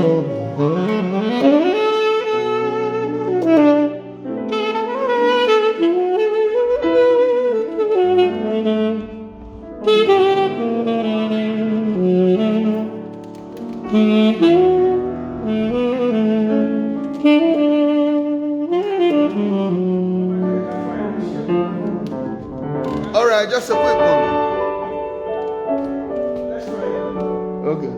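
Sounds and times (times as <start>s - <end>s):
slow jazzy saxophone melody: 0.0s - 27.9s.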